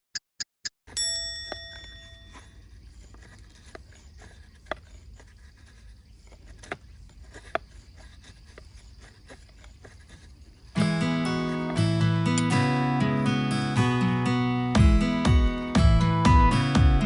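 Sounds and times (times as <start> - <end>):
acoustic guitar music: 10.8 - 17.0.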